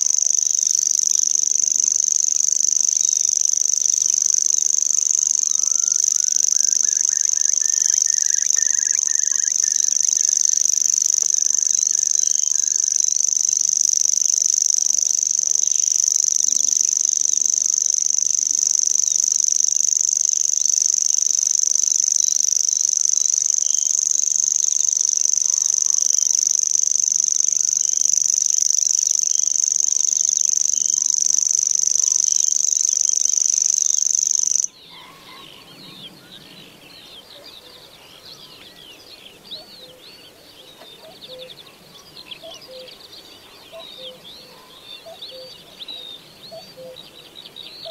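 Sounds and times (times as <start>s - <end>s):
bird reeling trill: 0.0s - 36.4s, 43.7s - 45.7s
faint bird call: 4.8s - 13.0s, 34.7s - 38.8s, 39.4s - 47.0s.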